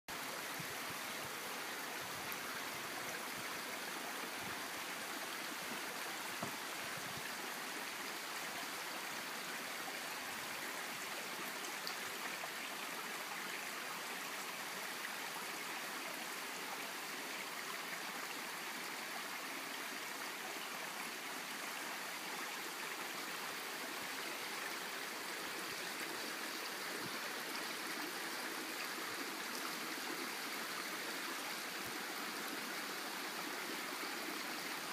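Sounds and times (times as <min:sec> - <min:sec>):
brook babbling over rocks: 0:00.1 - 0:34.9.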